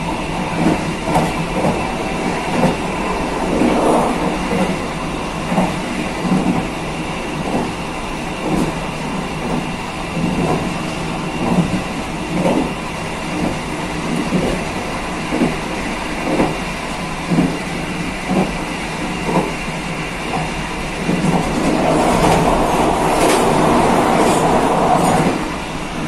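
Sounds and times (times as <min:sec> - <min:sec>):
train wheels rumbling on rails: 0:00.0 - 0:26.0
wheels clacking over rail joints: 0:21.1 - 0:25.4.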